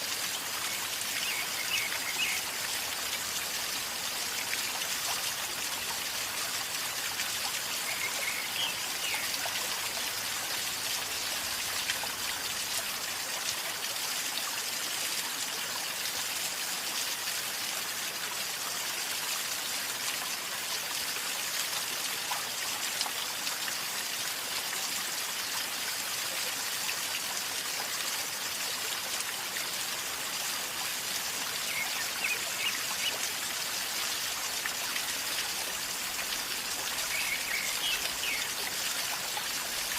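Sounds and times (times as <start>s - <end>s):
river water gurgling: 0.0s - 13.6s, 27.2s - 39.9s.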